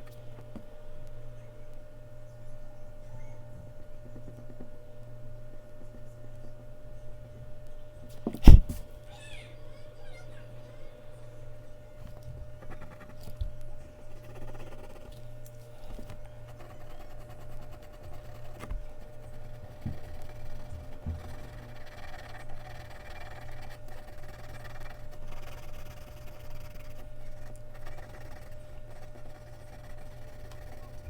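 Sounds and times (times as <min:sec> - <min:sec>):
electrical hum: 0:00.0 - 0:31.0
pencil scratching on paper: 0:08.4 - 0:08.8, 0:12.6 - 0:13.4, 0:14.1 - 0:15.2, 0:15.8 - 0:31.0
soft knocks on desk: 0:19.8 - 0:21.4.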